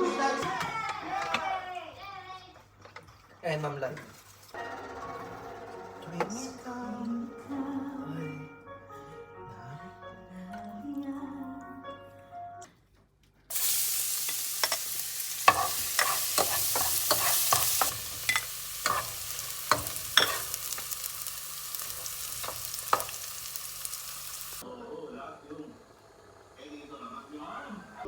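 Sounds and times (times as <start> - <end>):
background music: 0.0 - 1.1, 4.6 - 12.8
food sizzling in a hot pan: 13.5 - 24.6
utensil clacking against pan: 14.3 - 20.8.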